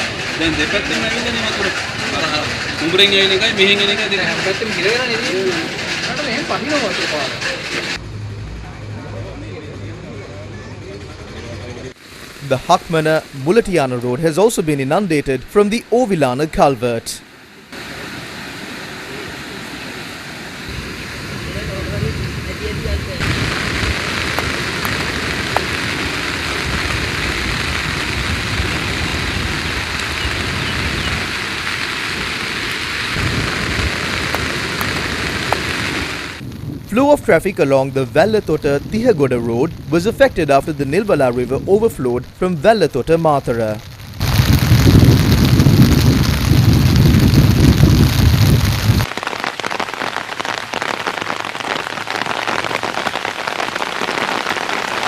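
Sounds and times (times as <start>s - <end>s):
heavy rain falling: 0.0s - 8.1s, 11.2s - 55.0s
deep rumble: 21.4s - 42.4s, 43.8s - 49.1s.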